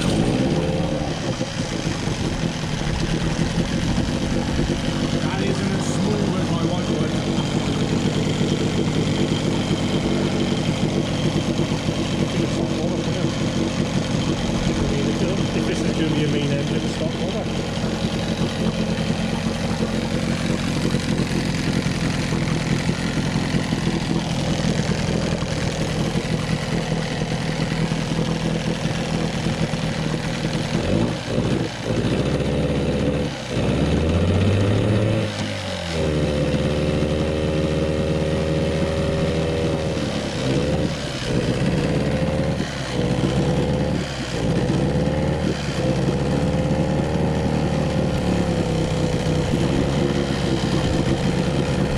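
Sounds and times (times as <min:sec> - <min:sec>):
outboard motor revving: 0:00.0 - 0:51.9.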